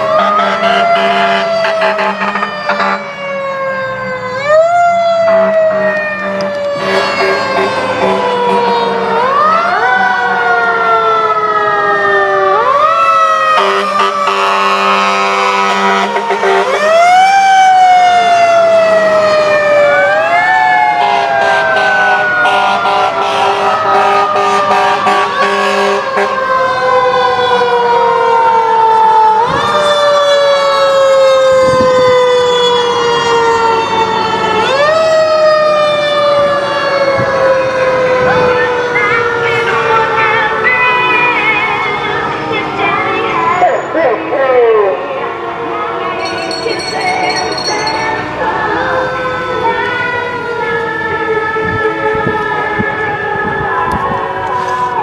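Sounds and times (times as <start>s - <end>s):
fire truck sirens wailing: 0.0s - 55.0s
low blaring horn tone: 0.1s - 3.1s, 6.6s - 9.1s, 21.0s - 26.4s.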